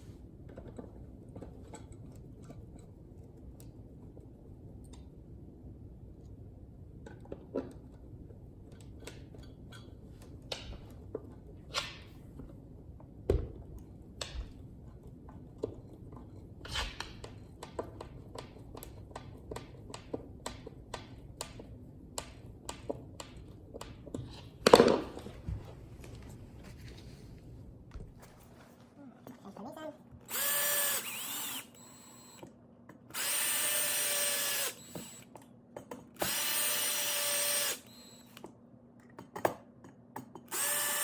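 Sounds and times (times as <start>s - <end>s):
tools clicking and tapping: 14.2s - 24.8s, 34.6s - 36.4s, 37.6s - 40.7s.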